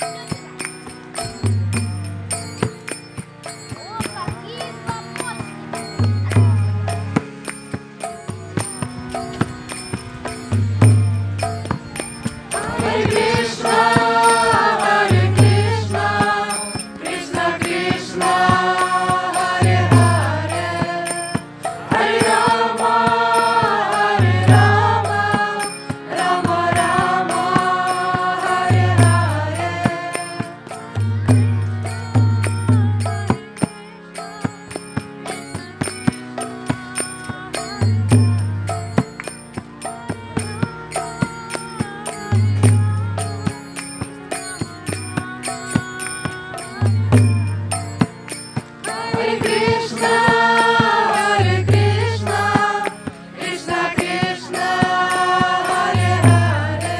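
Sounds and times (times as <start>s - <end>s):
voices chanting a melody: 11.6s - 33.3s, 48.8s - 56.9s.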